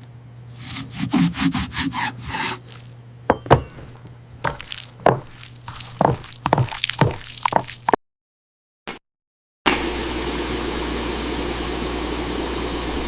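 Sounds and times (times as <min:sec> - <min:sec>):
rubbing or scraping strokes: 0:00.6 - 0:02.9, 0:03.9 - 0:08.0.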